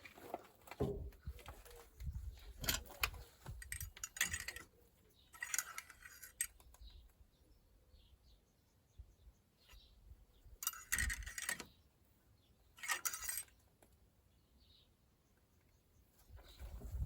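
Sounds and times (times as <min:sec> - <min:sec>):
metal objects clinking and rattling: 0:02.6 - 0:04.7, 0:05.3 - 0:06.6, 0:10.6 - 0:11.7, 0:12.8 - 0:13.5.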